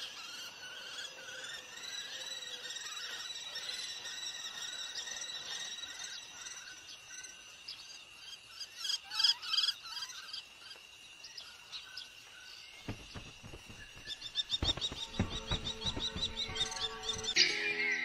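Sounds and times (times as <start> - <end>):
low thumps: 12.8 - 17.4.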